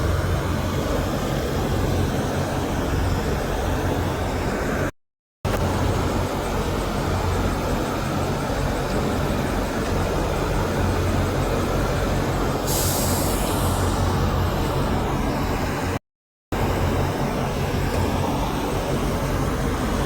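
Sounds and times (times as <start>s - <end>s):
air brake hiss: 12.6s - 14.3s.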